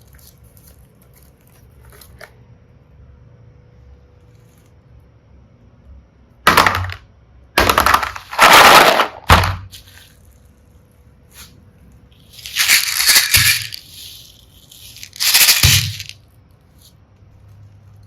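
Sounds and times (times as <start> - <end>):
plastic charms crackling and rattling: 12.2 - 16.2.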